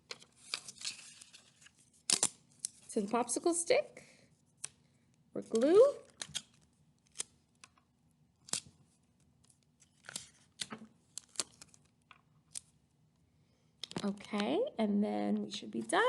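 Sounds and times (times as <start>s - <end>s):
paper crackling and clicking: 8.4s - 12.7s.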